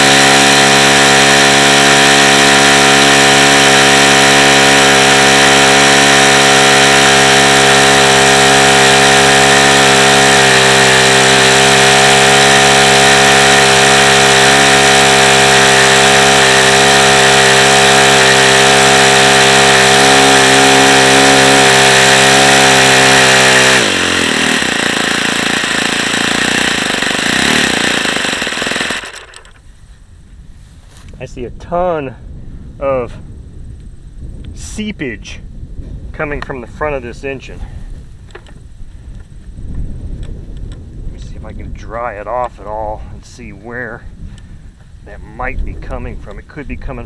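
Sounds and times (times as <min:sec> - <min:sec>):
model engine high-pitched buzz: 0:00.0 - 0:29.6.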